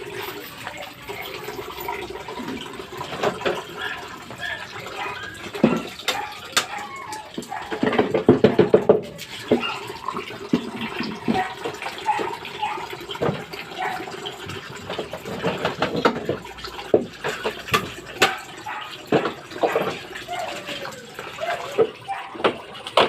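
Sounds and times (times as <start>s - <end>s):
water running and splashing: 0.0s - 23.0s
knocks and clatter: 7.4s - 9.6s, 14.5s - 20.1s.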